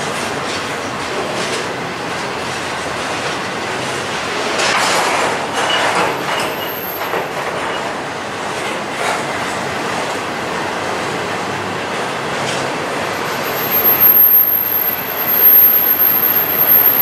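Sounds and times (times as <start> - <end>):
clickety-clack of wheels: 0.0 - 13.8
train wheels on rails: 0.0 - 17.0
faint high wheel squeal: 0.6 - 9.3, 12.4 - 17.0.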